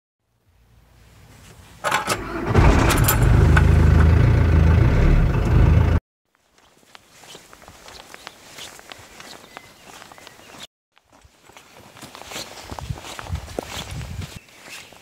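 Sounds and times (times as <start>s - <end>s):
car starter cranking: 1.8s - 4.4s
car engine idling: 2.2s - 6.0s.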